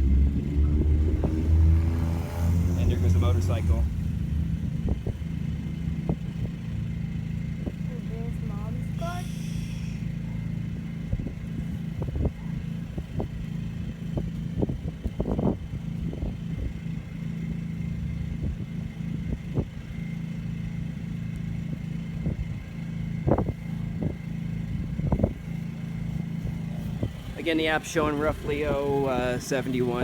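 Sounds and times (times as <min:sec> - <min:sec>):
wind buffeting microphone: 0:00.0 - 0:08.4, 0:10.9 - 0:17.3, 0:18.2 - 0:19.9, 0:22.1 - 0:30.0
generator running: 0:00.0 - 0:30.0.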